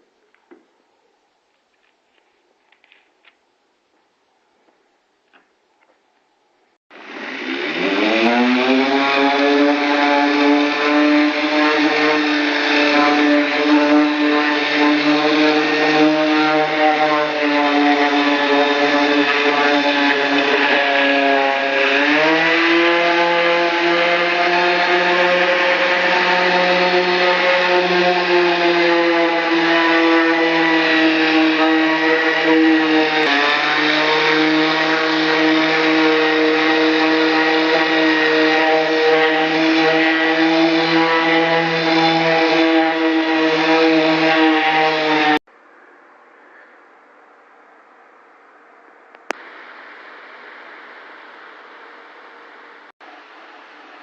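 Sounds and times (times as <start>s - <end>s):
paint spray gun motor buzzing: 7.0s - 44.7s.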